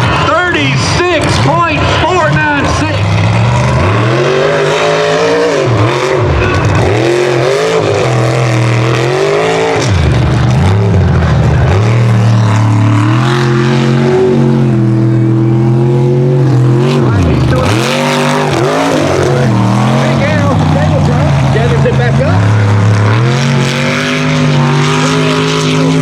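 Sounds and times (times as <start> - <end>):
truck engine revving hard: 0.0 - 26.0.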